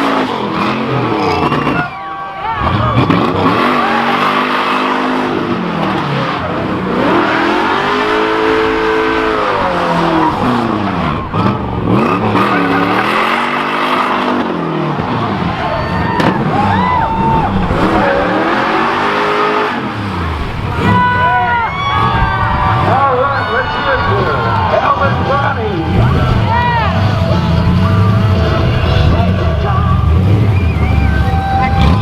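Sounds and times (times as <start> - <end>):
car engine revving: 0.0 - 32.0
tyres squealing on pavement: 0.6 - 5.2, 15.0 - 32.0.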